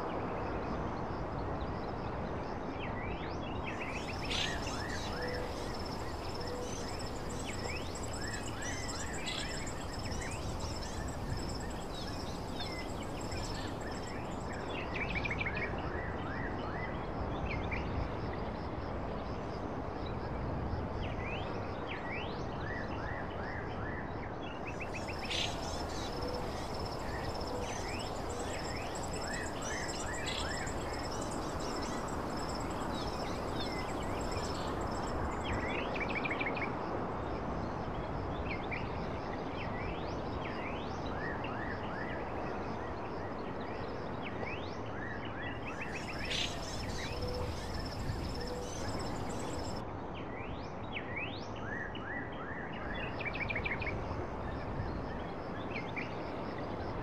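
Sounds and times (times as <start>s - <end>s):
high pulsing insect trill: 3.7s - 15.2s, 24.7s - 36.3s, 45.7s - 49.8s
small birds chirping: 3.8s - 14.7s, 24.7s - 35.8s, 45.8s - 49.8s.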